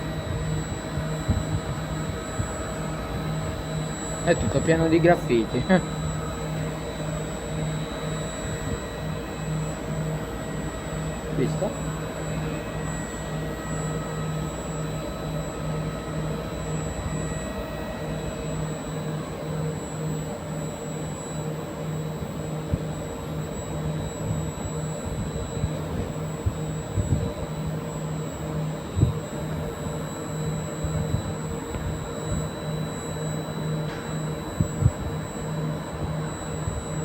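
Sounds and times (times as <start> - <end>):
train electrical hum and whine: 0.0 - 37.0
pulsing low tone: 28.7 - 37.0.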